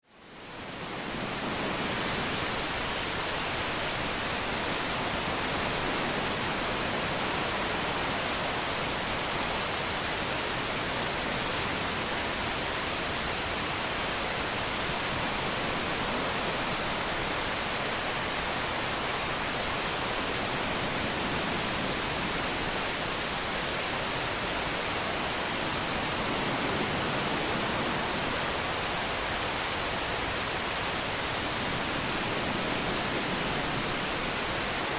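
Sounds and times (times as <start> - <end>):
waterfall roaring: 0.5 - 34.9.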